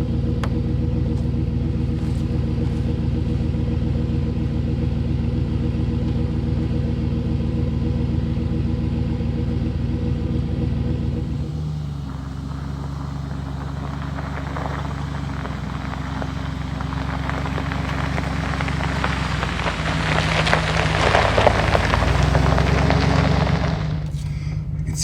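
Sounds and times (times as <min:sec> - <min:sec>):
pickup truck engine driving: 0:00.0 - 0:25.0
crackling noise: 0:11.3 - 0:25.0.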